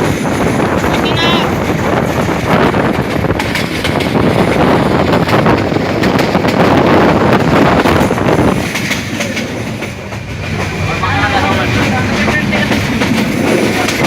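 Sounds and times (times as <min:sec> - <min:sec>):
passenger train rumbling and rattling: 0:00.0 - 0:14.0
wind buffeting microphone: 0:00.0 - 0:14.0.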